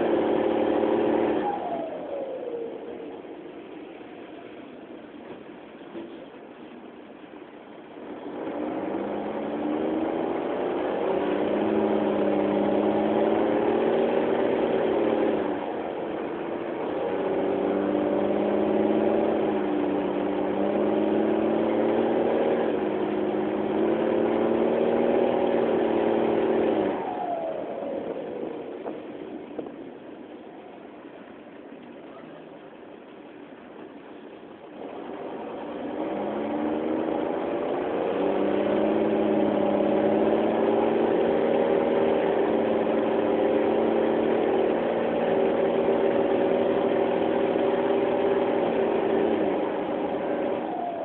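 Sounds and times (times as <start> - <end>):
bus diesel engine accelerating: 0.0 - 51.0.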